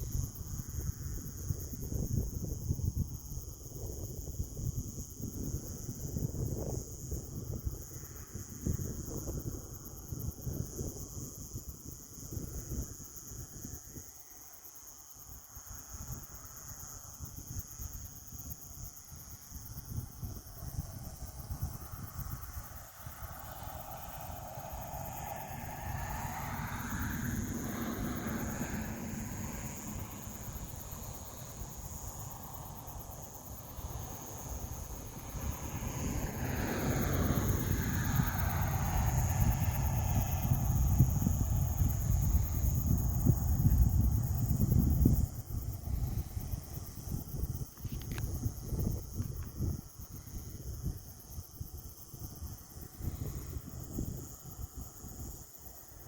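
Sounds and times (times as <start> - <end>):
wind rumble on microphone: 0.0 - 56.0
distant engine passing by: 22.8 - 42.2.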